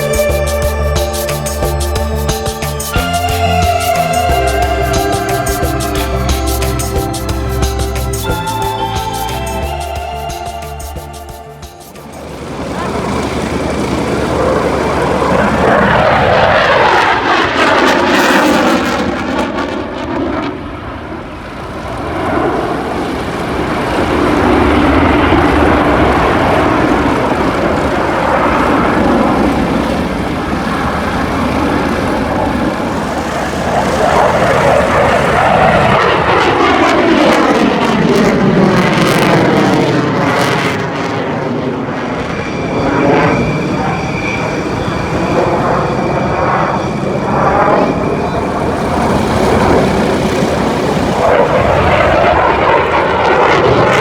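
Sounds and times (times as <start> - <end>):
aircraft engine flyover: 0.0 - 54.0.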